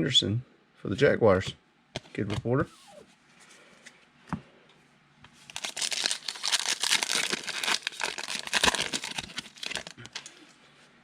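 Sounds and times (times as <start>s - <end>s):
foil wrapper crinkling and tearing: 5.4s - 10.4s.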